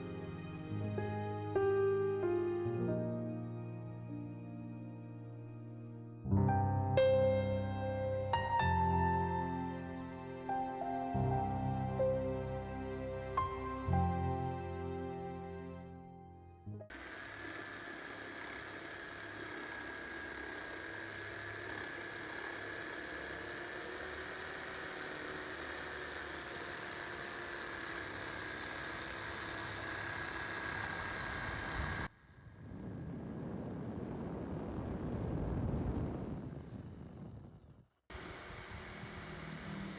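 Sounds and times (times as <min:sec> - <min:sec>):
power tool motor whining: 0:16.9 - 0:32.6, 0:38.1 - 0:39.9.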